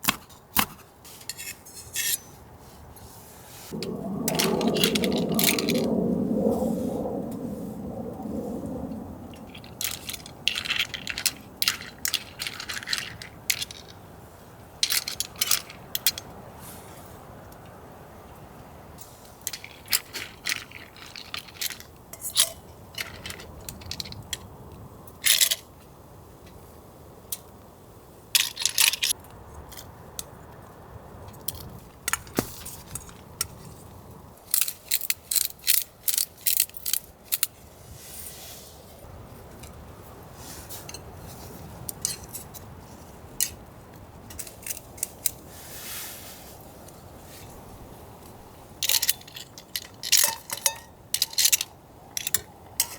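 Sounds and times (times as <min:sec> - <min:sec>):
clam shells clinking in a bowl: 0:09.8 - 0:14.0, 0:48.8 - 0:52.9.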